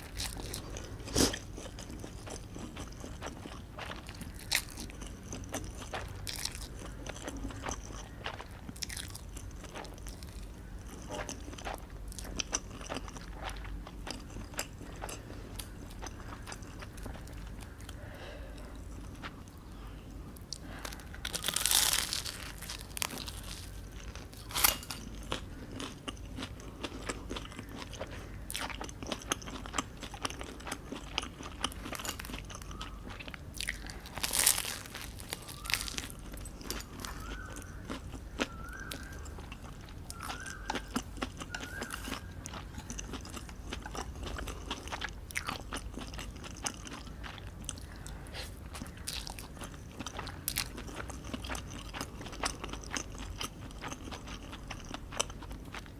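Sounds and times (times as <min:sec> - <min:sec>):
person biting and chewing: 0:20.7 - 0:55.9.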